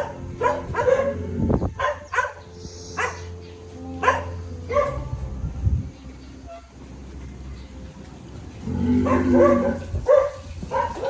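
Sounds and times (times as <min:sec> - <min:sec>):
dog barking: 0:00.0 - 0:01.2, 0:01.8 - 0:03.4, 0:04.0 - 0:05.1, 0:09.0 - 0:11.0
low steady hum: 0:00.0 - 0:10.3.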